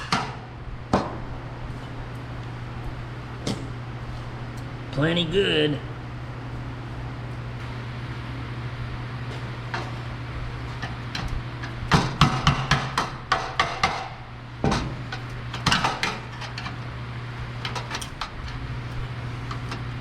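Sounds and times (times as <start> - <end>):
steady low hum: 0.0 - 20.0
hammer striking metal: 11.9 - 15.0.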